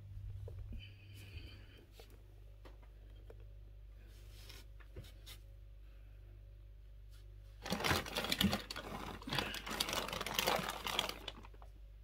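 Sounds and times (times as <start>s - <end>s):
packaging crackling and rustling: 7.6s - 11.7s.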